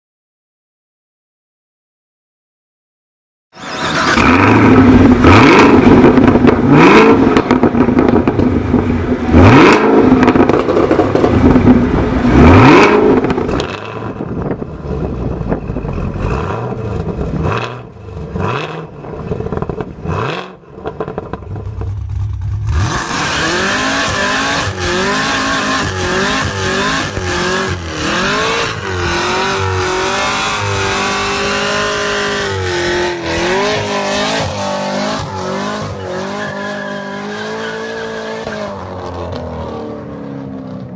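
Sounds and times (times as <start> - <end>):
car engine revving: 3.6 - 40.9
car engine running: 3.8 - 36.4.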